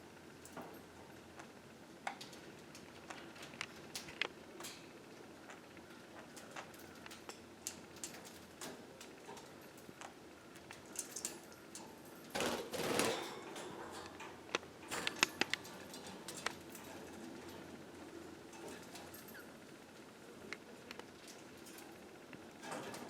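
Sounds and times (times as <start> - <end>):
birds pecking and tapping: 5.4 - 17.7.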